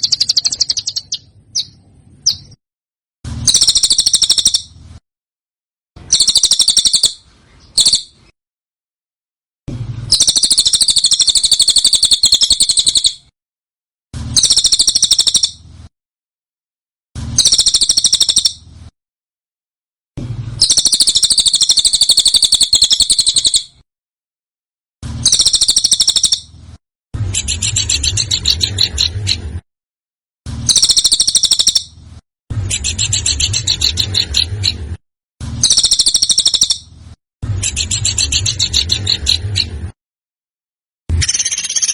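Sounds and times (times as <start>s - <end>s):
songbird rattling trills: 0.0s - 2.6s, 3.4s - 4.7s, 6.1s - 7.2s, 7.8s - 8.1s, 10.1s - 13.2s, 14.4s - 15.6s, 17.4s - 18.6s, 20.6s - 23.7s, 25.3s - 26.5s, 30.7s - 31.9s, 35.6s - 36.8s, 37.6s - 39.7s.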